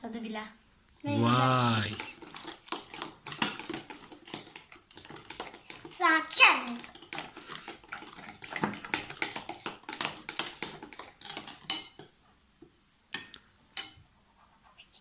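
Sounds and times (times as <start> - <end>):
spoons clinking and scraping bowls: 1.9 - 12.1, 13.2 - 14.0.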